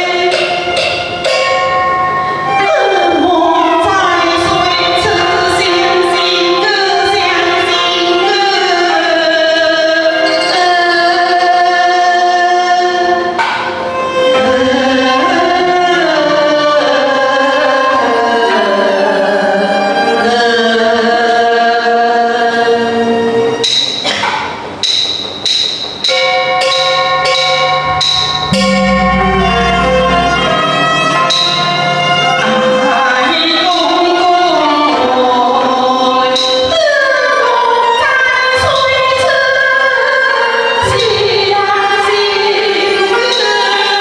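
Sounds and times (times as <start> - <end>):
sharp percussion strikes: 0.0 - 8.4, 23.6 - 35.1
gliding string melody: 26.2 - 35.4
low steady tone: 26.8 - 33.0.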